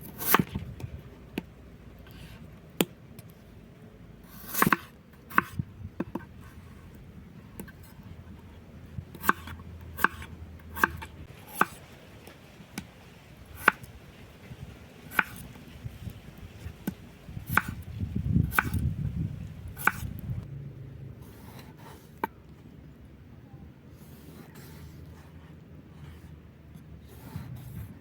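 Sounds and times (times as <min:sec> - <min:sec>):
knife chopping on cutting board: 0:04.3 - 0:06.3, 0:09.2 - 0:11.8, 0:15.1 - 0:15.4, 0:16.8 - 0:17.8, 0:18.5 - 0:18.8, 0:19.8 - 0:20.1.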